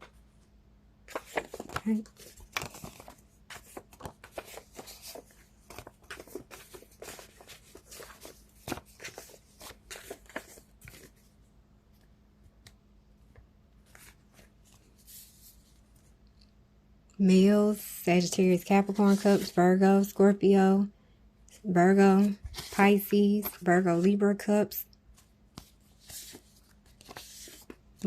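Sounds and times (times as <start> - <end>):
cards being shuffled: 1.1 - 11.2, 25.1 - 28.0.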